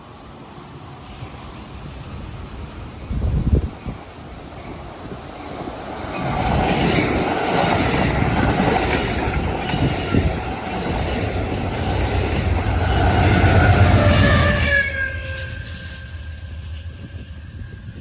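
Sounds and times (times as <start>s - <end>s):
train wheels rolling on rail: 0.0s - 18.0s
faint wheel squeal: 12.8s - 18.0s.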